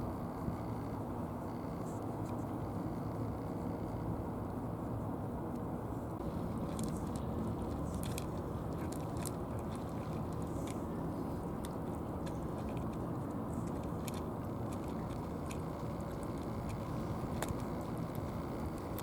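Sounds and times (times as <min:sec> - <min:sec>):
low background rumble: 0:00.0 - 0:19.0
cat crunching food: 0:06.2 - 0:19.0.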